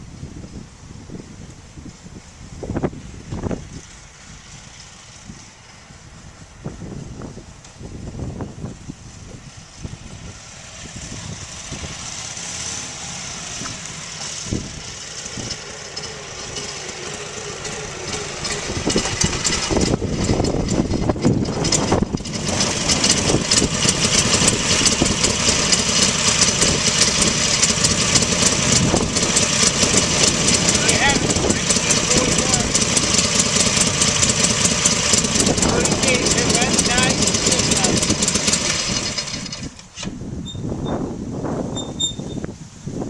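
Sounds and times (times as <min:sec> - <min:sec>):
motorcycle engine running: 0:09.3 - 0:40.0.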